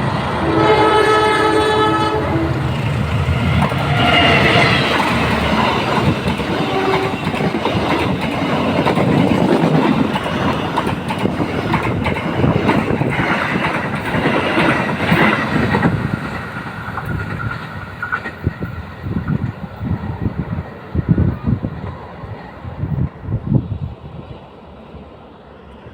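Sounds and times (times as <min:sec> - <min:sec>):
train wheels clattering on rails: 0:02.0 - 0:22.1.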